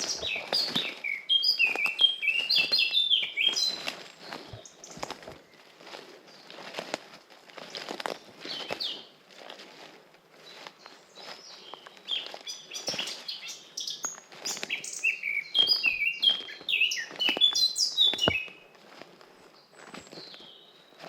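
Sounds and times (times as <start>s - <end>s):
songbirds singing and chirping: 0.0s - 6.8s, 7.5s - 9.2s, 10.3s - 21.0s.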